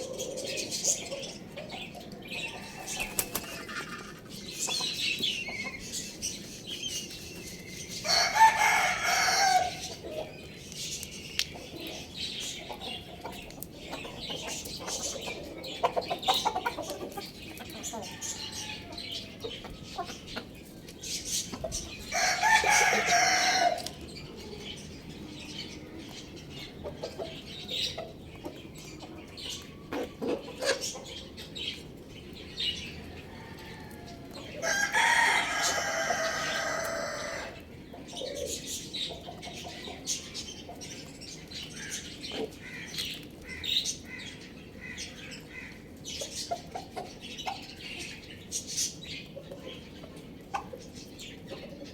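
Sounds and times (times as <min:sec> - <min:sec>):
chickens clucking and chirping: 0:00.0 - 0:51.9
rooster crowing: 0:08.0 - 0:09.8, 0:22.1 - 0:23.9, 0:33.3 - 0:37.6.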